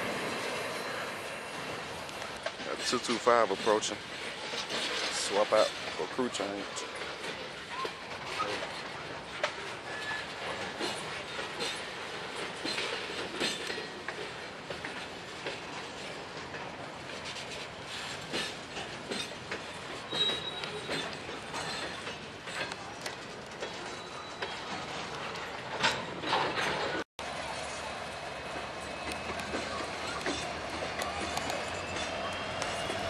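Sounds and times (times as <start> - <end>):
train wheels clicking over rail joints: 1.5 - 27.0, 28.1 - 33.0
wheels squealing: 9.7 - 11.9, 17.3 - 33.0.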